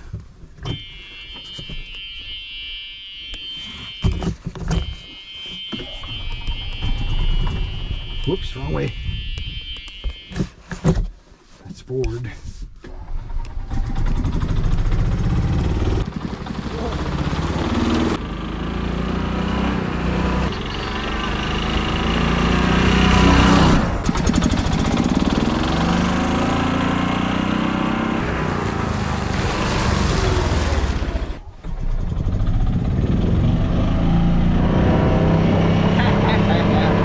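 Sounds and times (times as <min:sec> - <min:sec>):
golf cart engine running: 0:12.9 - 0:18.4, 0:20.5 - 0:26.7, 0:28.2 - 0:33.9.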